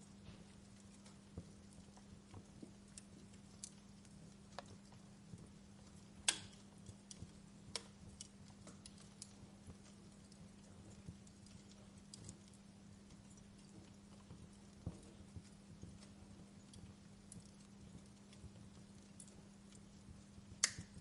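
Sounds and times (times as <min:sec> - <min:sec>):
steady low hum: 0:00.0 - 0:21.0
wood fire crackling: 0:00.0 - 0:21.0.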